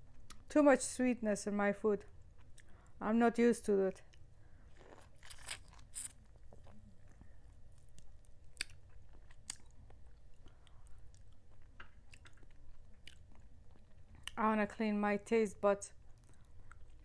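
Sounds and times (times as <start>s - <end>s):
person chewing food: 2.1s - 2.9s, 4.1s - 14.4s, 16.0s - 17.0s.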